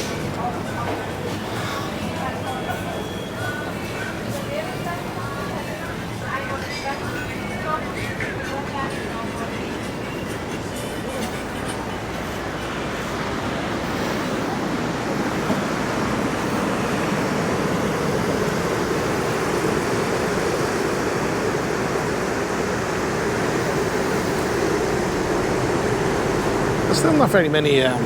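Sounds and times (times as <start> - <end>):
wind: 0.0 - 28.0
ocean surf: 5.2 - 28.0.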